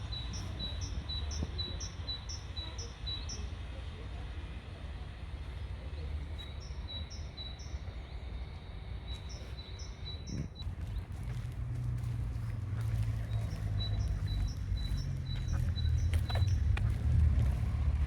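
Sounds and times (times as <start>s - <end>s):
songbird chirping: 0.0s - 3.9s, 6.0s - 18.0s
low rumble: 10.6s - 18.0s.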